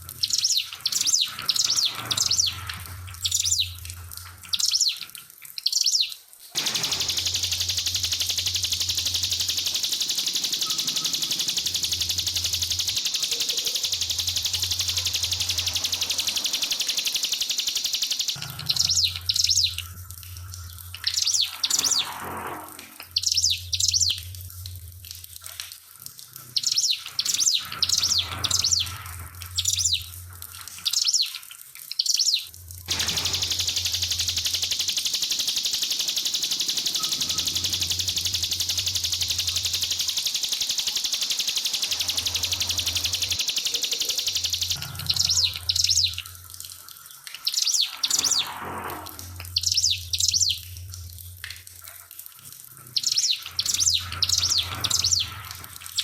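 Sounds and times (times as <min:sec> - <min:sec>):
faint trickling water: 0:00.0 - 0:21.8, 0:22.6 - 0:56.0
bird chirping and trilling: 0:00.2 - 0:03.8, 0:04.4 - 0:19.9, 0:21.0 - 0:22.2, 0:23.1 - 0:24.2, 0:26.6 - 0:29.0, 0:29.6 - 0:30.1, 0:30.8 - 0:31.4, 0:32.0 - 0:46.3, 0:47.4 - 0:48.6, 0:49.5 - 0:50.6, 0:52.9 - 0:56.0.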